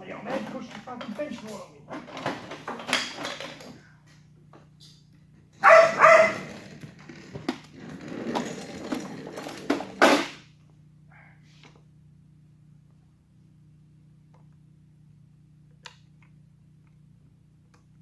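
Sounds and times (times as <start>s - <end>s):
steady low hum: 3.6s - 18.0s
dog barking: 5.6s - 6.6s.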